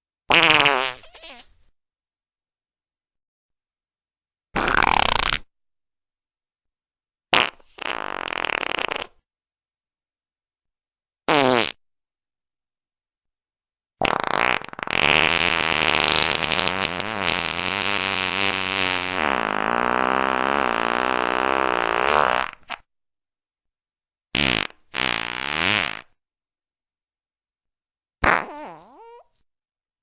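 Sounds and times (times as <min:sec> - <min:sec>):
farts: 0:00.3 - 0:01.5, 0:04.6 - 0:05.5, 0:07.3 - 0:09.3, 0:11.3 - 0:11.8, 0:14.0 - 0:22.9, 0:24.3 - 0:26.2, 0:28.2 - 0:29.4.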